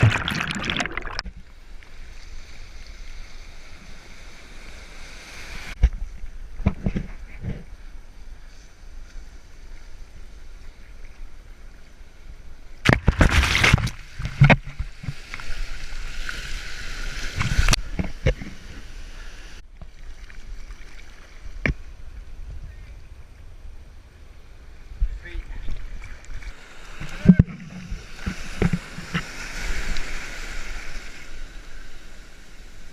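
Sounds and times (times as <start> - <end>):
water sloshing and splashing: 0.0 - 1.4, 12.9 - 18.8.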